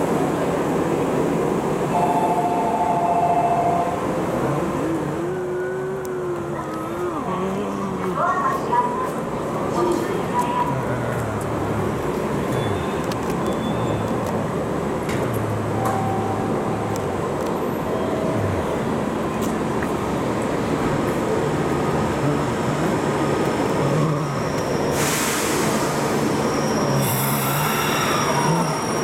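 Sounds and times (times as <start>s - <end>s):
loud train hiss: 24.8s - 29.0s.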